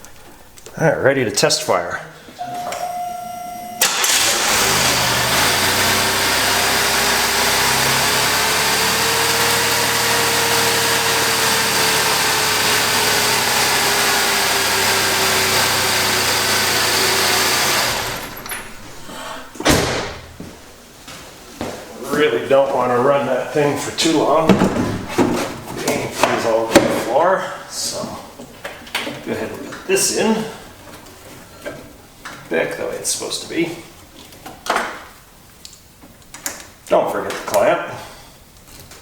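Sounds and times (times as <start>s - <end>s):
car engine idling: 2.5s - 20.8s, 24.0s - 25.6s
starter cranking engine: 3.8s - 20.0s.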